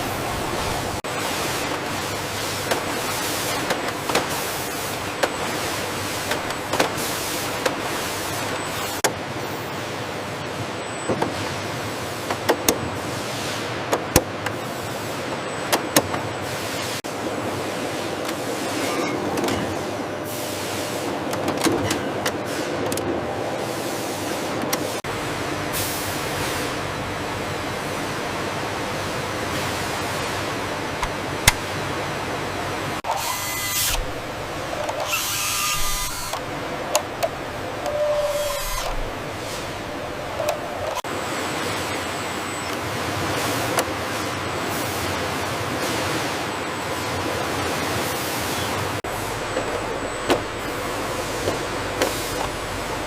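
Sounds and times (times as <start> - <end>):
factory machinery hissing: 16.3 - 21.3, 22.4 - 53.0
power tool bursts: 33.0 - 34.2, 34.8 - 36.5, 37.8 - 39.2.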